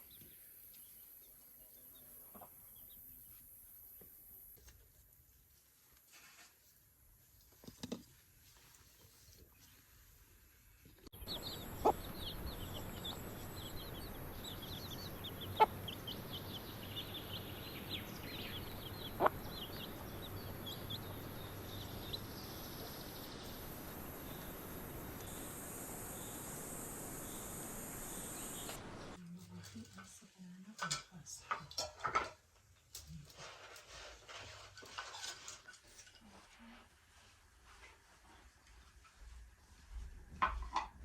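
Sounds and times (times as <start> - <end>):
steady background hiss: 10.2 - 29.3
birds chirping: 11.1 - 29.2.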